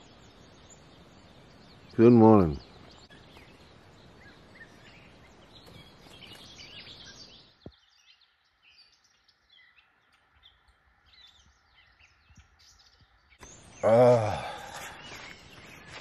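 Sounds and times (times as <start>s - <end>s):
light steady hiss: 0.0s - 16.0s
small birds singing and chirping: 0.0s - 16.0s.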